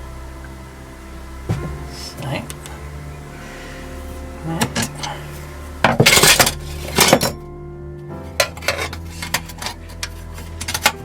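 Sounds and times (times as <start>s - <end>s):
metal tools clinking: 5.8s - 7.4s, 8.4s - 11.0s.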